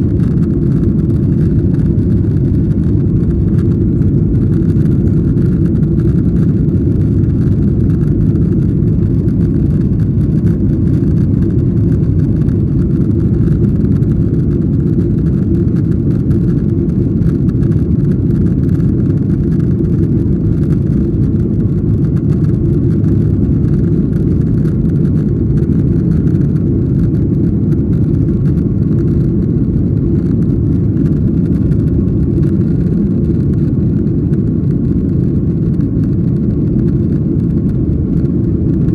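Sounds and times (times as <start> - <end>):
airliner cabin rumble: 0.0 - 38.9.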